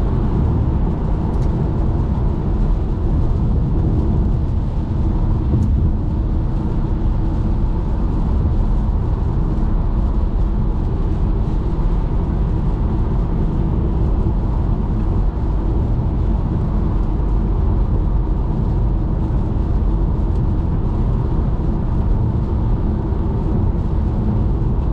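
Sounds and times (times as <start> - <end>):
road and tyre noise: 0.0 - 24.9.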